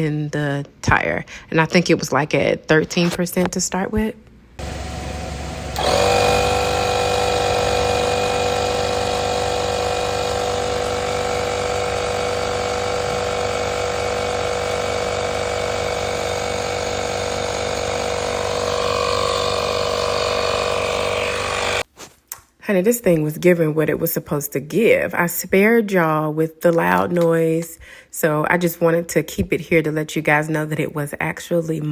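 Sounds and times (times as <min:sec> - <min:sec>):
air compressor running: 0:04.6 - 0:21.9.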